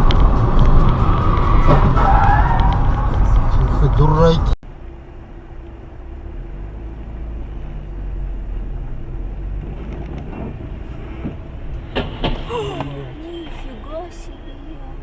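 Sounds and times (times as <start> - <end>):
car engine and road noise: 0.0 - 15.0
sharp knocks: 11.2 - 12.5.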